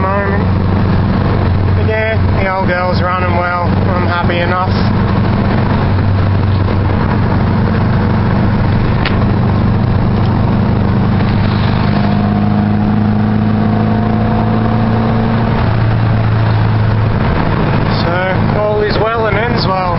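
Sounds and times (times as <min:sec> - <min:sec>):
car engine drone: 0:00.0 - 0:19.9
road noise: 0:00.0 - 0:19.9
rising engine note: 0:03.7 - 0:18.8.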